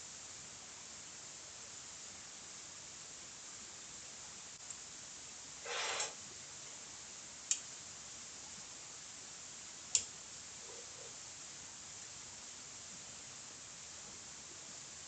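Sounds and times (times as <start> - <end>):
steady hiss: 0.0 - 15.0
brief scrape: 5.6 - 6.2.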